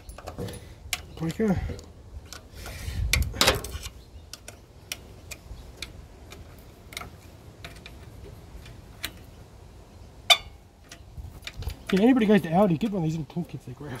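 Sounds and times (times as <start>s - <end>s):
metallic clicks of hand tools: 0.0s - 9.3s
hand tools clattering: 10.3s - 14.0s.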